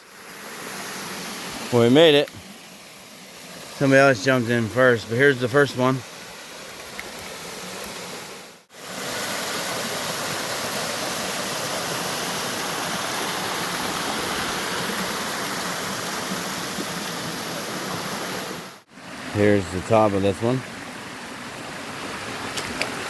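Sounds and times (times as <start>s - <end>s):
waterfall rushing: 7.4s - 23.0s.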